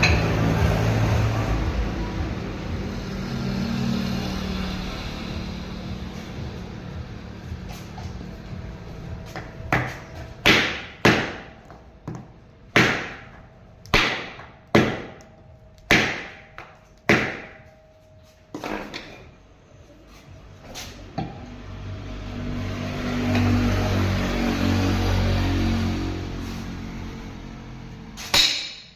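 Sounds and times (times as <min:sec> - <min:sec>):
hammer strikes: 0:09.2 - 0:17.8, 0:28.2 - 0:28.9
low steady hum: 0:11.4 - 0:21.7.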